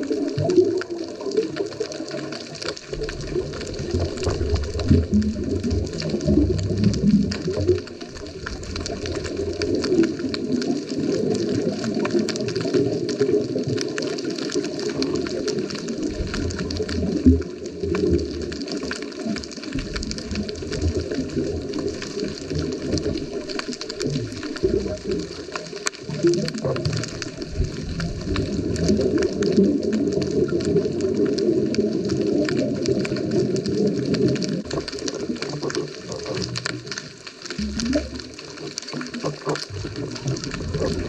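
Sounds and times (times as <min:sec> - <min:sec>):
diver's exhaled bubbles rumbling: 0:00.0 - 0:41.0
fine crackle of small clicks: 0:00.0 - 0:41.0
underwater watery rush: 0:00.0 - 0:41.0.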